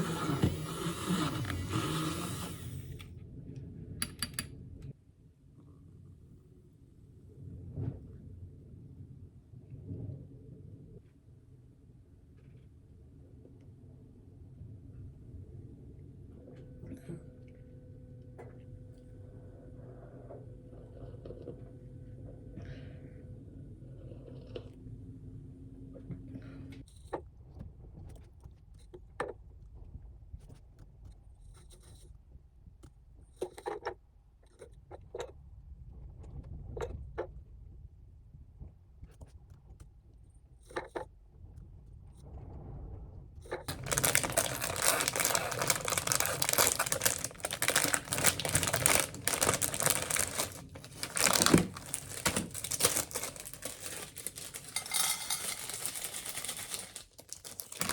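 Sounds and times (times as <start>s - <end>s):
loud rustling: 43.7s - 57.9s.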